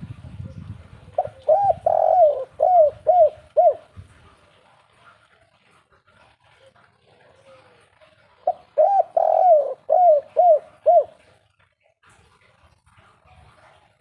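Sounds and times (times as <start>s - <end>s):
dove cooing: 1.0s - 4.5s, 7.3s - 11.5s.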